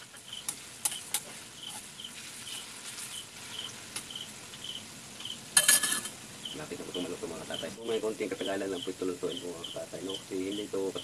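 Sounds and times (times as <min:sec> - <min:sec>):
cricket chirping: 0:00.0 - 0:11.0
oil sizzling in a pan: 0:00.0 - 0:11.0.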